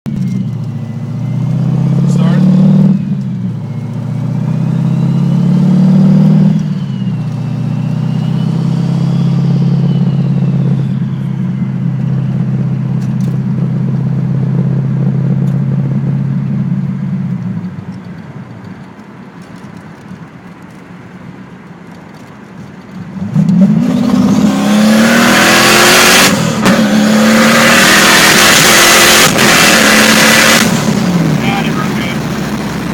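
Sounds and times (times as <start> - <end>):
turbo whine: 0.1 - 17.2
car engine revving: 0.1 - 17.4, 23.0 - 32.9.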